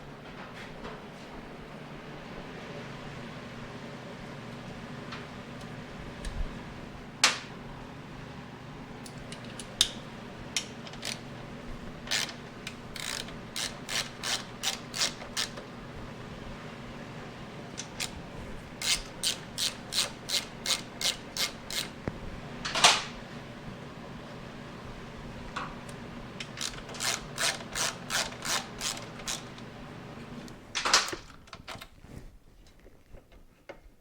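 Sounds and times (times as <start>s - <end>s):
ratchet wrench clicking: 10.6s - 11.2s, 12.1s - 15.6s, 18.8s - 21.9s, 26.4s - 29.5s.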